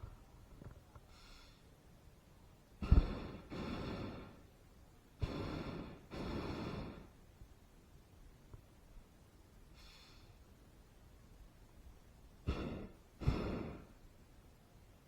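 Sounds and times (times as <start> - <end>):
propane burner blasts: 2.8 - 4.5, 5.2 - 7.2, 12.5 - 14.0.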